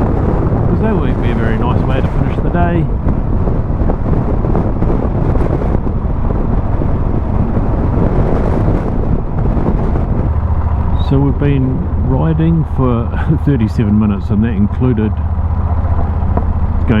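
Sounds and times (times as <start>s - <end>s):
motorcycle engine: 0.0s - 17.0s
wind buffeting microphone: 0.0s - 17.0s.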